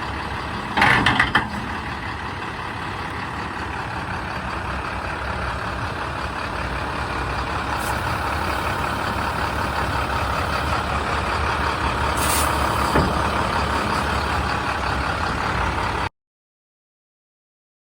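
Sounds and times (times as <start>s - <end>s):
diesel truck engine running: 0.0s - 16.1s
air hiss: 7.8s - 8.9s, 12.2s - 13.0s.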